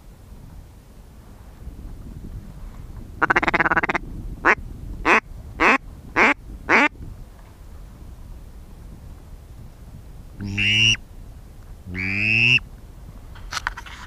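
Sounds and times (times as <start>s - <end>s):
duck rattling chatter: 3.2s - 4.0s
duck quacking: 3.2s - 6.9s, 10.4s - 11.0s, 11.9s - 12.6s.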